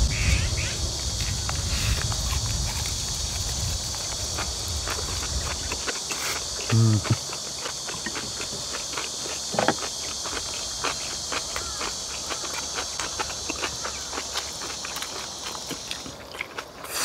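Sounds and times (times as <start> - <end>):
chewing with wet mouth clicks: 2.0 - 17.0
person humming mm: 6.7 - 7.2.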